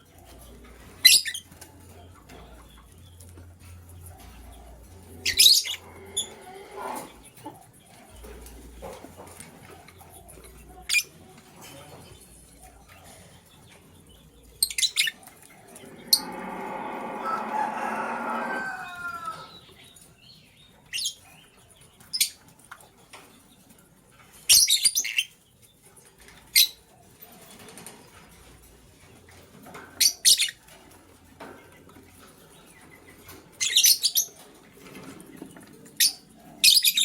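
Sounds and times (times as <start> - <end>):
lovebirds chirping: 0.0 - 23.6.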